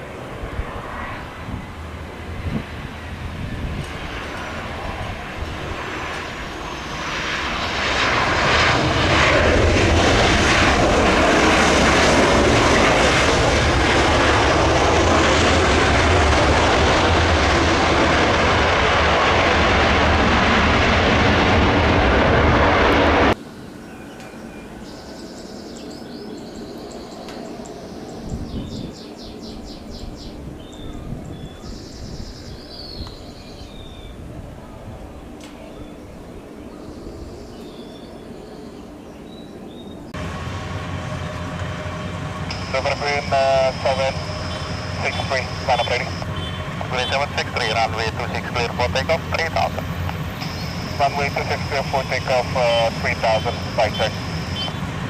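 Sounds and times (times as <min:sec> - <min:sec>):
jet engines passing: 0:00.0 - 0:55.0
faint high chirps: 0:50.4 - 0:51.0.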